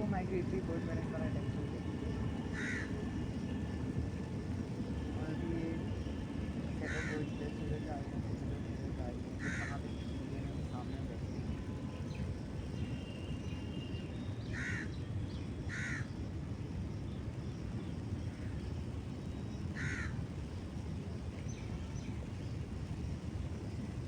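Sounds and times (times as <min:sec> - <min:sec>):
steady low rumble: 0:00.0 - 0:14.4
crow cawing: 0:02.5 - 0:03.0, 0:06.8 - 0:07.4, 0:09.4 - 0:09.9, 0:14.5 - 0:15.0, 0:15.7 - 0:16.1, 0:19.8 - 0:20.2.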